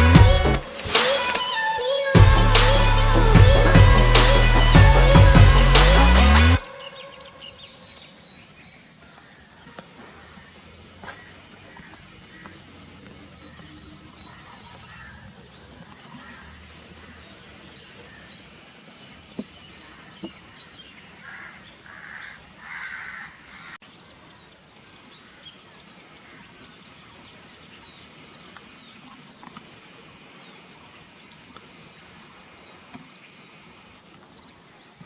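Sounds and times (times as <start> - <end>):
bird calling: 0.0 - 12.6.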